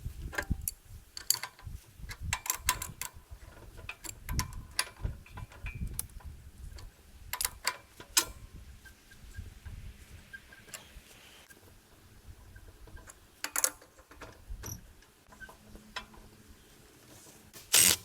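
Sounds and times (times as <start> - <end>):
hand tools clicking on metal: 0.4 - 3.2, 13.0 - 14.8, 17.6 - 18.0.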